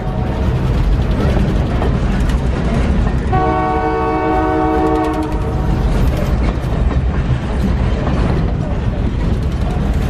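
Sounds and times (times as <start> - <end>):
train of boxcars rumbling past: 0.0 - 10.0
locomotive air horn: 3.3 - 5.7.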